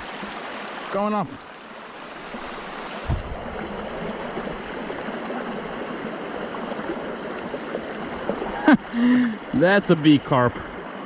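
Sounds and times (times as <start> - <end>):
river rushing: 0.0 - 10.0.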